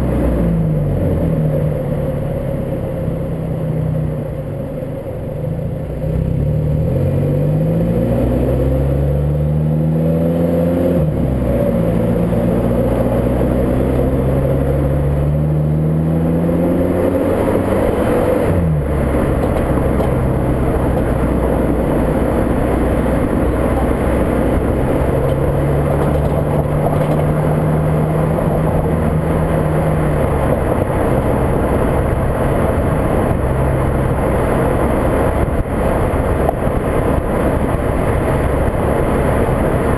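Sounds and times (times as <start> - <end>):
car engine accelerating: 0.0 - 39.9
wind noise: 10.9 - 39.9.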